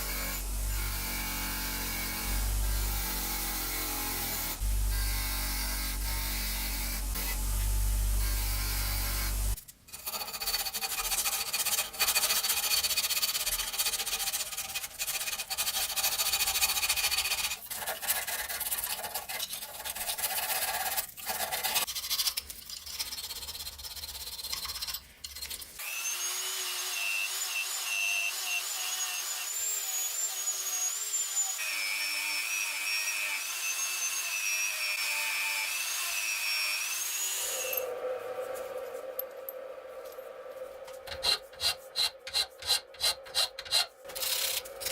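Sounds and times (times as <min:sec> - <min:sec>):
power tool whining: 0:00.0 - 0:09.6
low steady hum: 0:04.6 - 0:09.6
metal scraping and rubbing: 0:37.4 - 0:44.9.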